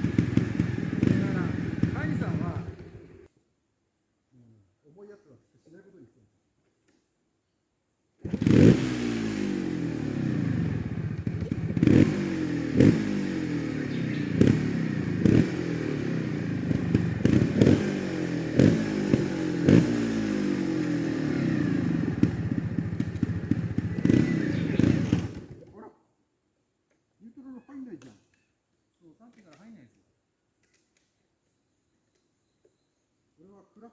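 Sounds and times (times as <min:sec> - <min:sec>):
motorcycle thumps and clatter: 0:00.0 - 0:02.4, 0:22.2 - 0:25.7
motorcycle engine revving: 0:00.0 - 0:03.3, 0:08.2 - 0:25.7.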